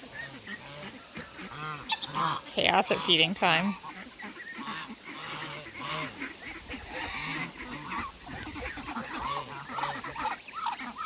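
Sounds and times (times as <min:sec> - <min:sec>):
ducks quacking: 0:00.0 - 0:11.0
geese honking: 0:00.0 - 0:11.0.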